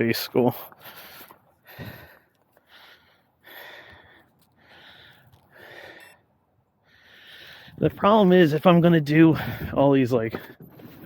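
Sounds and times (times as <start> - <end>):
person breathing: 0.8 - 7.8.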